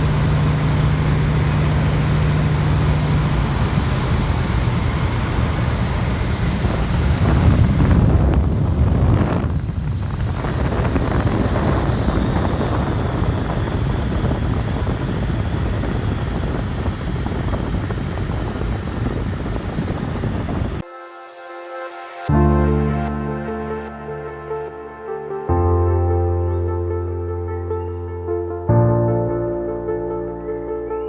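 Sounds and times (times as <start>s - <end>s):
biplane radial engine and propeller: 0.0s - 20.8s
wind rushing over microphone: 0.0s - 20.8s.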